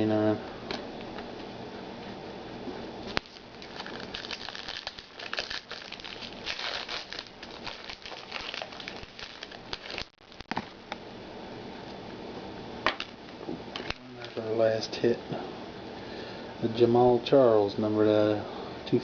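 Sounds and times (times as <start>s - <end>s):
wrapper crinkling: 3.1s - 10.8s.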